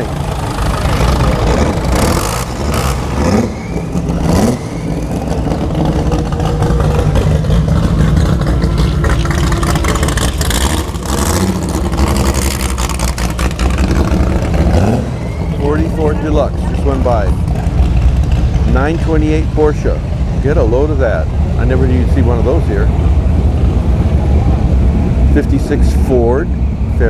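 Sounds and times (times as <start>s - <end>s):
cars driving past: 0.0s - 27.0s
engine revving: 0.0s - 27.0s.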